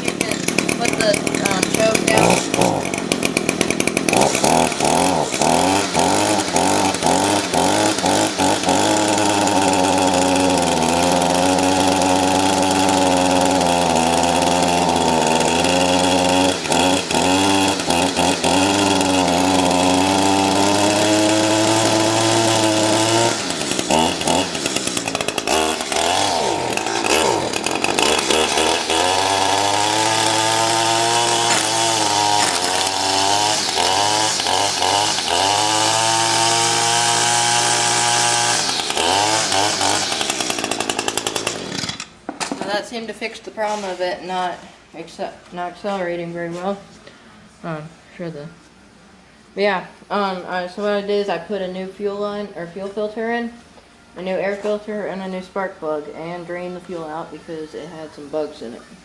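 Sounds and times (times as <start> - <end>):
string trimmer engine revving: 0.0 - 42.2.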